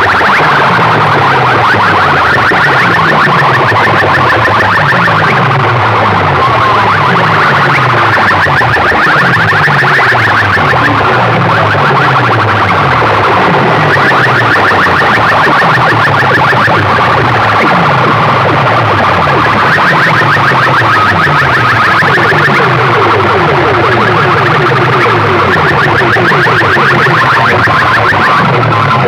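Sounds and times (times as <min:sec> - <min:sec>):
loud distorted electronic dance music: 0:00.0 - 0:29.0.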